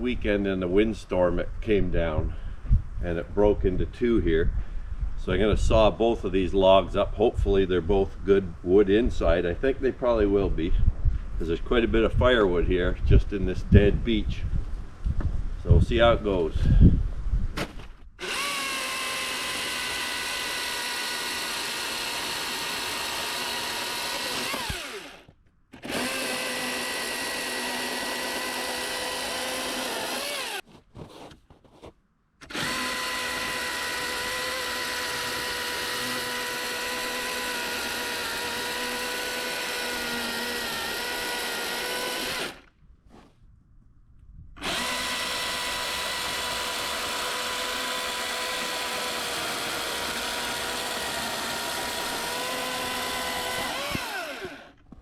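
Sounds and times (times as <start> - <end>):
electric chainsaw sawing log: 18.2 - 30.6, 32.4 - 42.7, 44.6 - 54.9.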